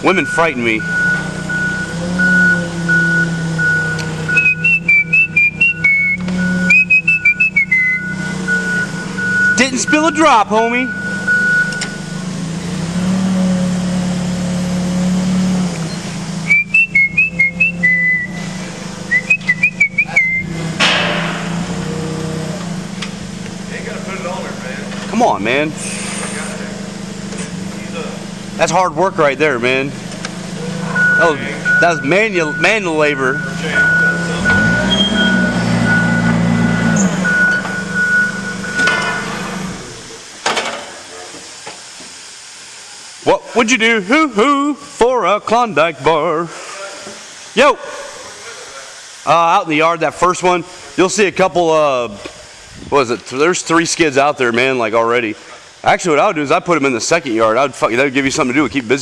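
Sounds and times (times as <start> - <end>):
reverse alarm beeping: 0.0 - 12.8, 15.9 - 18.4, 19.1 - 20.6, 30.4 - 39.0
vehicle engine running: 0.0 - 40.3
high whistled chirps: 0.9 - 10.2, 15.9 - 18.4, 19.1 - 20.6, 30.8 - 38.8
sharp knock: 20.8 - 21.7.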